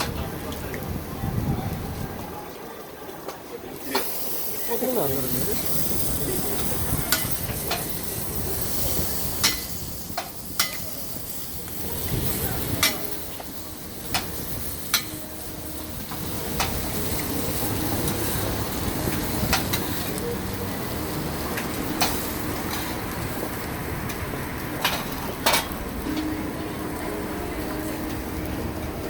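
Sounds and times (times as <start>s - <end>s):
food sizzling on griddle: 3.7s - 29.0s
metal tools striking griddle: 9.4s - 11.2s, 12.6s - 15.4s.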